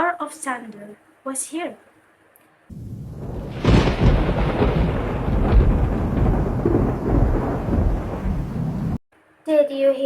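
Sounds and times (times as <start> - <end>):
rolling thunder: 2.7 - 9.0.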